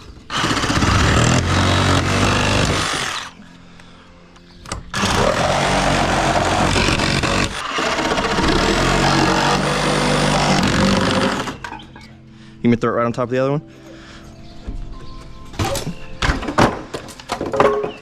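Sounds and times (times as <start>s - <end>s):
power saw cutting wood: 0.2s - 3.4s, 4.9s - 11.8s.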